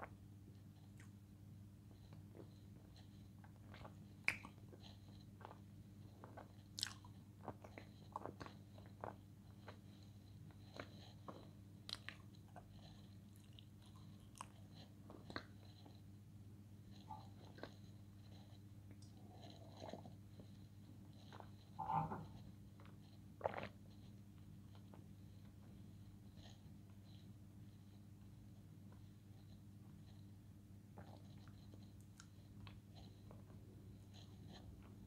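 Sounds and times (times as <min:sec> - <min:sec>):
chewing and crunching clay: 0:03.4 - 0:16.0.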